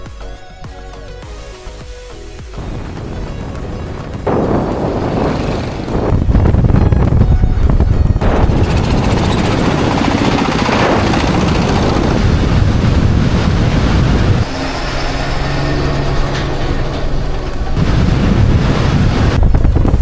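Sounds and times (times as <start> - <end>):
wind buffeting microphone: 2.6 - 14.5, 16.8 - 20.0
vehicle rumbling: 2.6 - 20.0.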